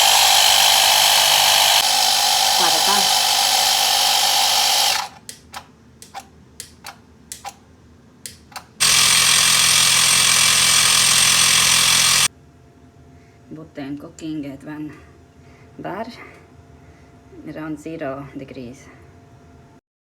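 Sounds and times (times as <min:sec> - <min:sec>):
air compressor buzzing: 0:00.0 - 0:06.2, 0:08.6 - 0:12.3.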